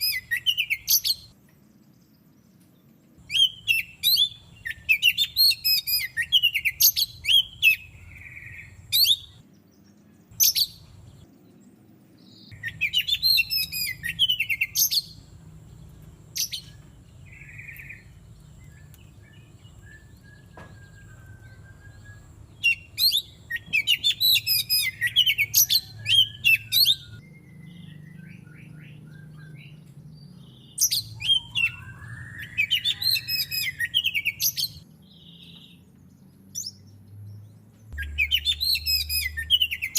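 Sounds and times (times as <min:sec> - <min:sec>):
bird singing high chirping notes: 0:00.0 - 0:02.1, 0:03.2 - 0:35.8, 0:37.9 - 0:39.9.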